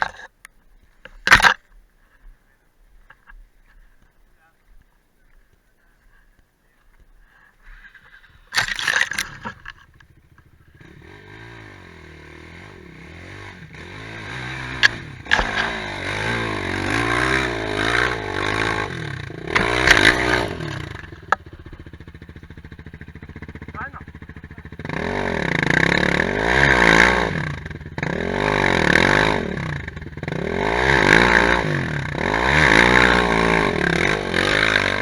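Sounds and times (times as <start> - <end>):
quad bike engine revving: 8.1 - 35.0.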